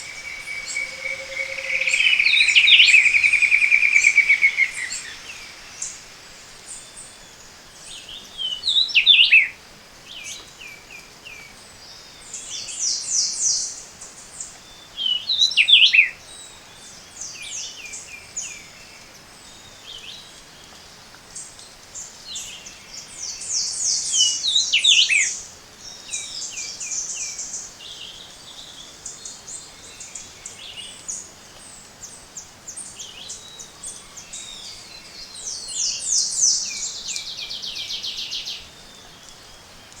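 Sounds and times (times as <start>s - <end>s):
bird song with falling notes: 0.0s - 6.0s
fast high-pitched bird notes: 0.0s - 6.6s.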